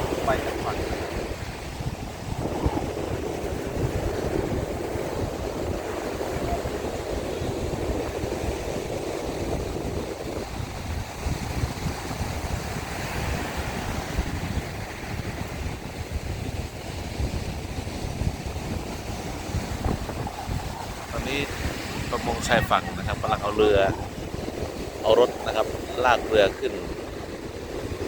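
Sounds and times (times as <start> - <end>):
wind buffeting microphone: 0.0 - 28.0
breaking surf: 17.1 - 28.0.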